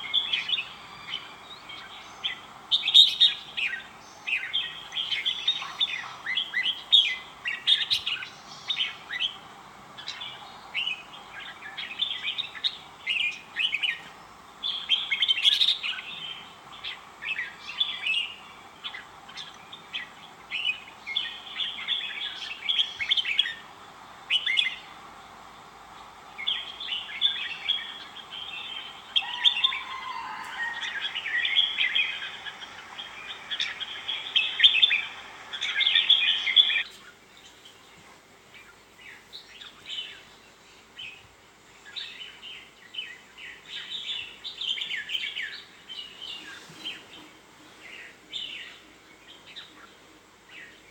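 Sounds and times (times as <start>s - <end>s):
birds singing warbled phrases: 0.0s - 37.9s
faint steady hiss: 0.0s - 50.9s.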